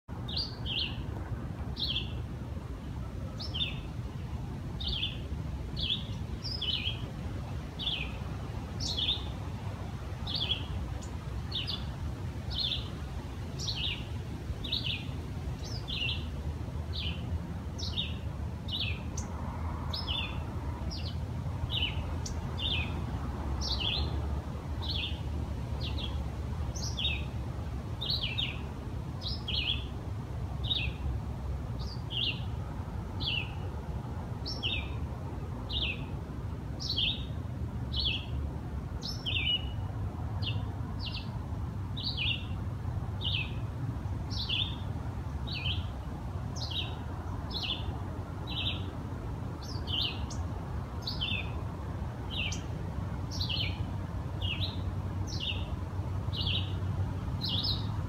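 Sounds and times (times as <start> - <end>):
bird chirping: 0.2 - 1.1, 1.7 - 2.2, 3.3 - 4.2, 4.8 - 7.1, 7.8 - 9.4, 10.2 - 13.0, 13.6 - 16.3, 16.9 - 23.0, 23.6 - 24.2, 24.8 - 27.4, 28.0 - 30.0, 30.6 - 31.1, 31.8 - 32.6, 33.2 - 33.7, 34.4 - 35.0, 35.7 - 36.1, 36.8 - 38.4, 39.0 - 41.4, 42.0 - 42.6, 43.2 - 43.6, 44.3 - 46.0, 46.6 - 48.9, 49.6 - 51.6, 52.3 - 52.7, 53.3 - 55.7, 56.3 - 56.8, 57.4 - 58.0.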